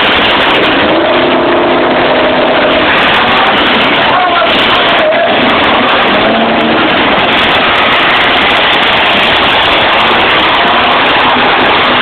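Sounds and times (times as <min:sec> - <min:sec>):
car engines running loud: 0:00.0 - 0:12.0.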